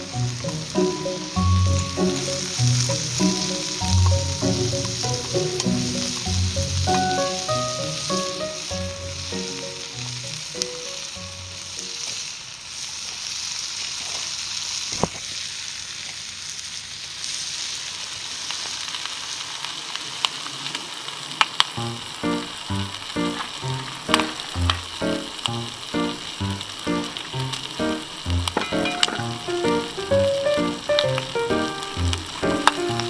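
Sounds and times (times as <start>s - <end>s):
background music with bass: 0.0s - 9.4s
food sizzling in a pan: 0.0s - 33.0s.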